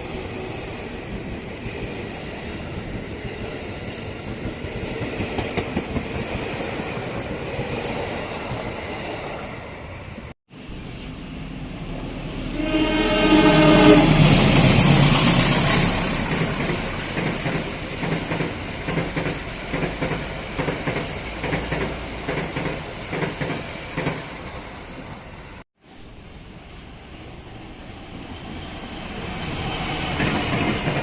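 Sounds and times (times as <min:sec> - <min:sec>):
train wheels clacking on rails: 0:00.0 - 0:09.4, 0:14.2 - 0:25.2, 0:29.0 - 0:31.0
train horn: 0:12.4 - 0:15.0.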